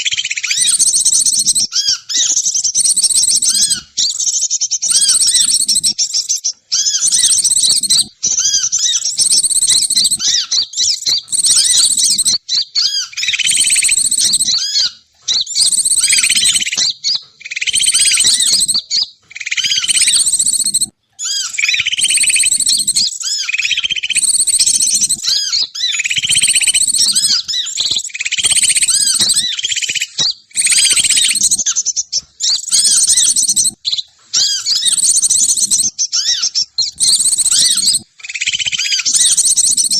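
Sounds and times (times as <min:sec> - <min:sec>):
recorded small bird chirps: 0:00.0 - 0:39.9.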